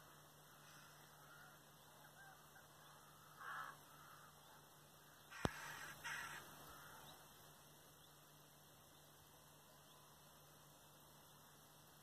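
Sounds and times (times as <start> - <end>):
harsh bird calls: 0.6 - 7.3.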